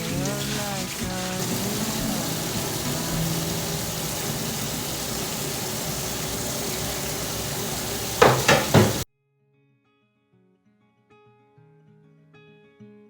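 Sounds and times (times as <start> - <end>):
food sizzling on a grill: 0.0 - 9.0.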